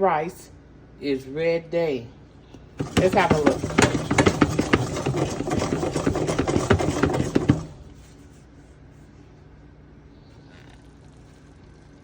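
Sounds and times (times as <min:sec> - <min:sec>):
utensil scraping a pan: 0:02.8 - 0:08.3.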